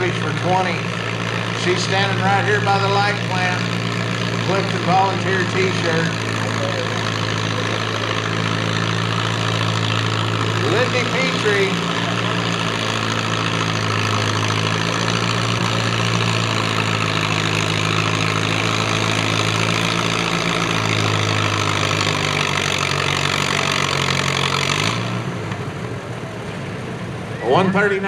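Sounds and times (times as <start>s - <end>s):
tractor engine running hard: 0.0s - 28.0s.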